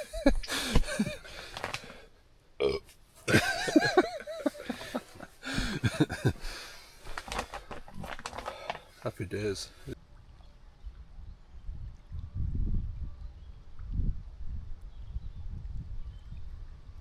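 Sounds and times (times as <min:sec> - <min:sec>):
man making wordless vocal sounds: 0:09.0 - 0:10.0.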